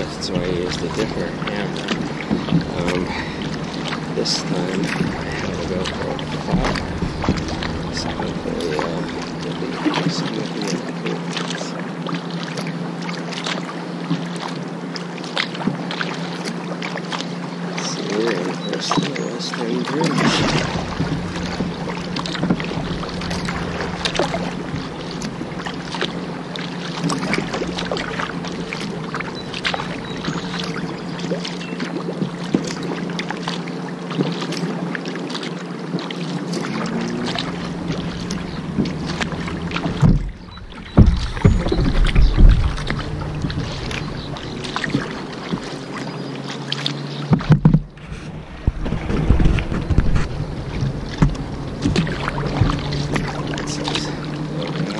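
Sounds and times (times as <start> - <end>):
steady low hum: 0.0 - 13.0, 16.9 - 54.9
paddle water splashes and drips: 0.0 - 54.9
thumps: 37.3 - 45.8, 47.3 - 53.3.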